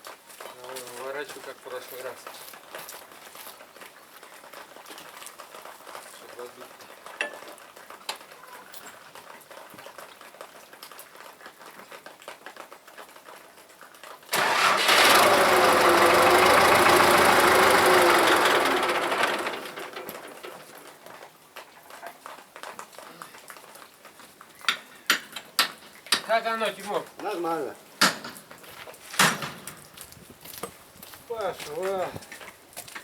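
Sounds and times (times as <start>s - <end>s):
motor running: 14.4s - 20.9s.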